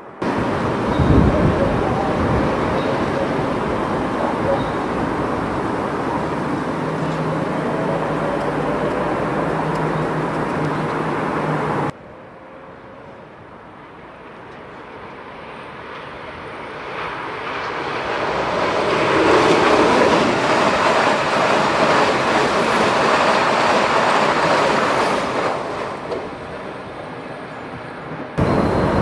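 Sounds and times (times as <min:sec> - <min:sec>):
loud steady noise: 0:00.0 - 0:11.9, 0:28.4 - 0:29.0
electric train passing at speed: 0:00.0 - 0:29.0.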